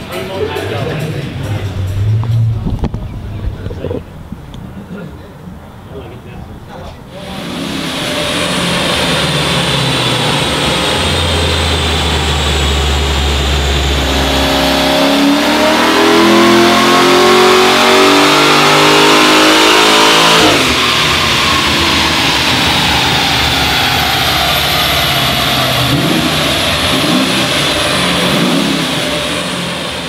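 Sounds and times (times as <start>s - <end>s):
engine revving on dyno: 7.1s - 30.0s.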